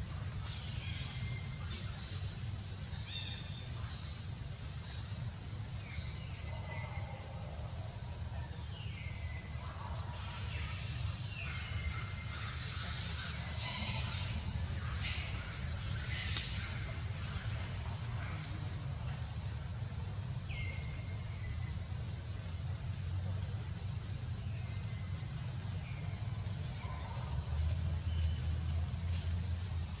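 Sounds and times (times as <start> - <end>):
bird calls: 8.7 - 19.1.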